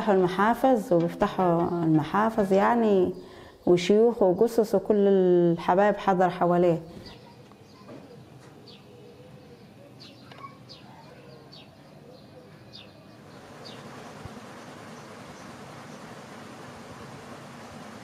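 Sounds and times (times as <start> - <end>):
quiet village ambience: 0.0 - 18.0
small birds chirping: 6.9 - 16.2.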